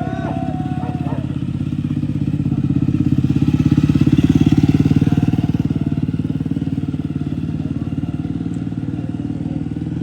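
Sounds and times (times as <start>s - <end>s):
motorcycle engine at low revs: 0.0s - 10.0s.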